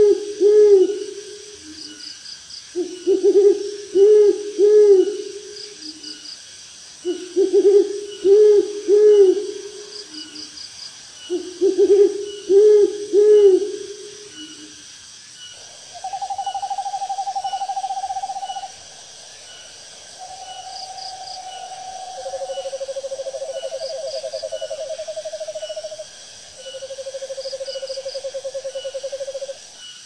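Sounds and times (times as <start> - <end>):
owl hooting: 0.0 - 1.8, 2.8 - 5.4, 7.0 - 10.3, 11.3 - 14.7, 15.6 - 26.0.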